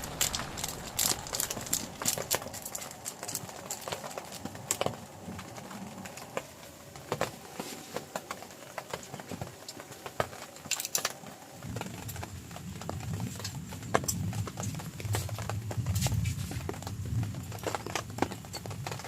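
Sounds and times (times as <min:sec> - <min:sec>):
low rumble: 0:00.0 - 0:05.8
large raindrops tapping: 0:00.0 - 0:19.0.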